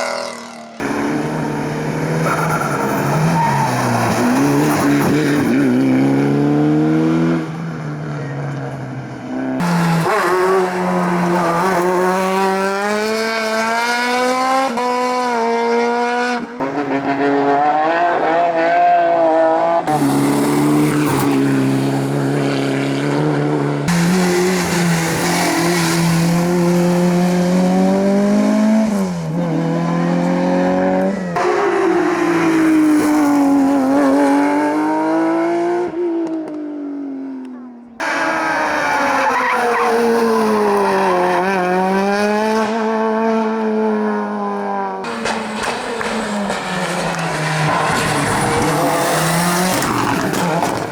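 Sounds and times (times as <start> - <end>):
race car engines revving: 0.0 - 50.9
tyre squeal: 2.2 - 5.0, 38.0 - 41.5.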